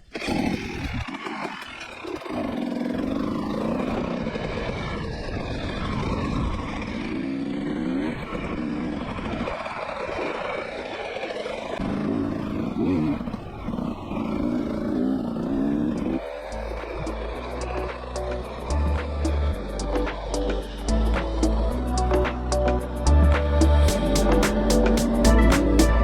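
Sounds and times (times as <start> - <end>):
wind rumble on microphone: 0.3 - 26.0
motorcycle engine running: 11.8 - 26.0.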